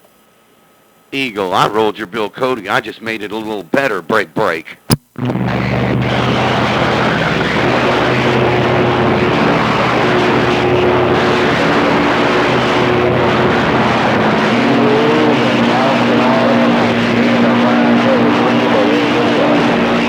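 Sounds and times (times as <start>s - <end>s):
radio static hiss: 0.0s - 20.0s
steady humming carrier tones: 5.2s - 20.0s.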